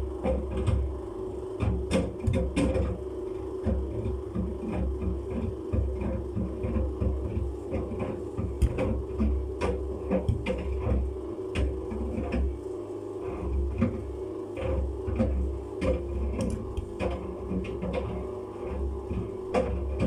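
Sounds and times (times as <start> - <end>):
knocks and clicks from drum: 1.6 - 3.0, 3.7 - 11.0
washing machine drum turning: 8.4 - 11.8, 16.3 - 18.0.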